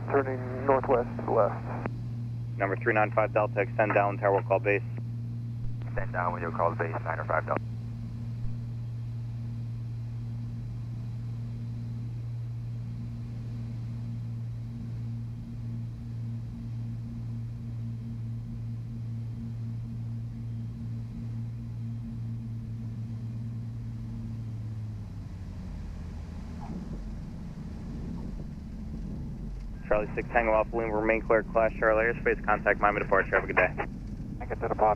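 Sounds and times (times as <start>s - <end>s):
aircraft piston engines droning: 0.0s - 34.9s.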